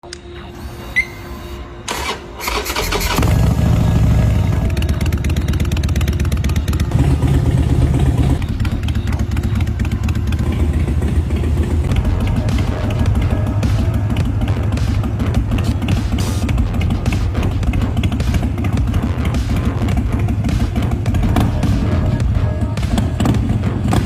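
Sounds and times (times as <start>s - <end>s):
motorcycle starter cranking: 1.9s - 7.4s
motorcycle engine running: 2.4s - 24.0s.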